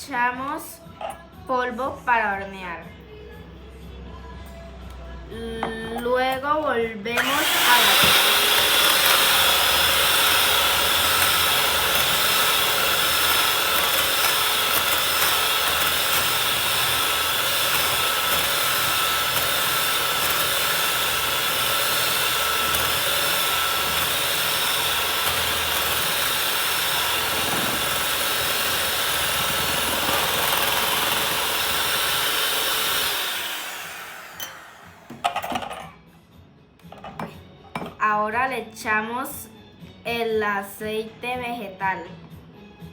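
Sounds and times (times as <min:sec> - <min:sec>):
electric hand mixer beating eggs: 0:07.2 - 0:35.5.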